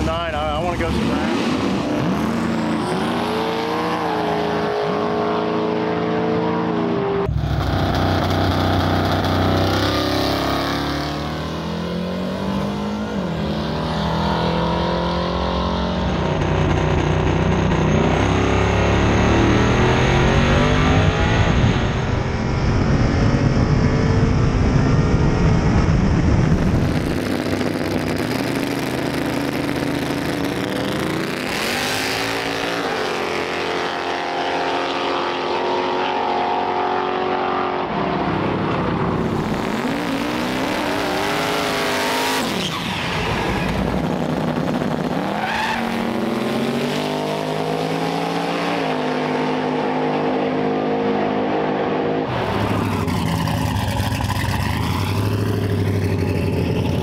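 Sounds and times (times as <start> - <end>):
drag racing engines revving: 0.0 - 57.0.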